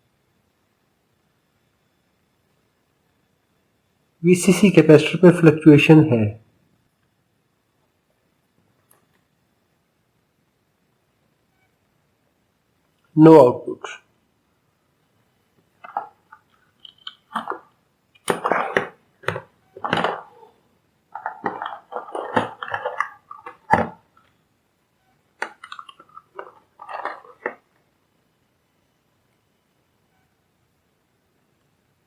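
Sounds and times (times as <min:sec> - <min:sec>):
crunching and scraping handling noises: 0:15.8 - 0:24.4, 0:25.4 - 0:27.8.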